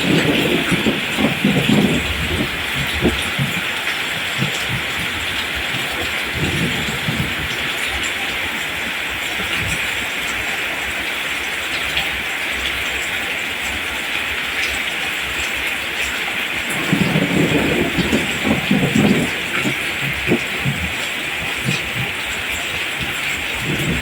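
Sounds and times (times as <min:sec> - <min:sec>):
thunder rumbling: 0:00.0 - 0:10.2, 0:15.8 - 0:24.0
rain falling on plants: 0:00.0 - 0:24.0.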